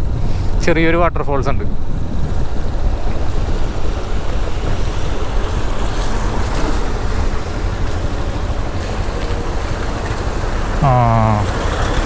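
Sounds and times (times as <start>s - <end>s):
wind rushing over microphone: 0.0s - 8.5s
motorcycle running: 1.7s - 12.0s.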